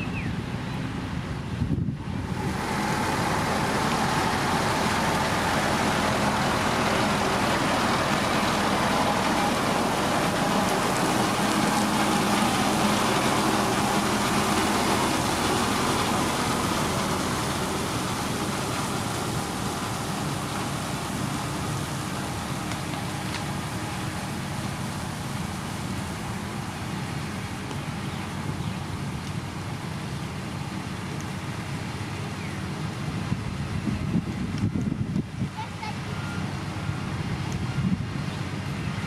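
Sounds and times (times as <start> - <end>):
heavy diesel machinery engine: 0.0 - 39.0
noisy hiss: 0.0 - 39.0.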